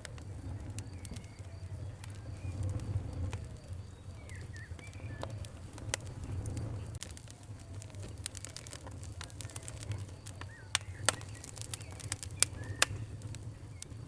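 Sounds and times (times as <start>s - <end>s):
low steady rumble: 0.0s - 14.0s
wood fire crackling and popping: 0.0s - 14.0s
birds chirping: 0.1s - 14.0s.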